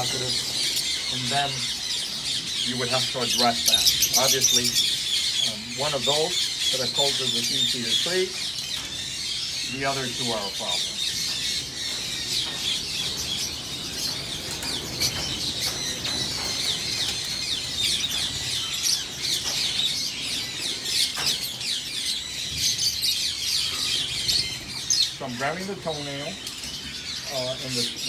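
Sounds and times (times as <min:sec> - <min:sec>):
flock of birds chattering: 0:00.0 - 0:28.0.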